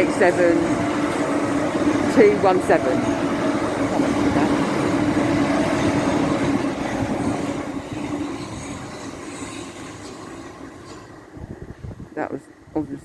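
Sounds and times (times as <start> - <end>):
electric train passing hum: 0.0 - 13.0
rail noise: 0.0 - 13.0.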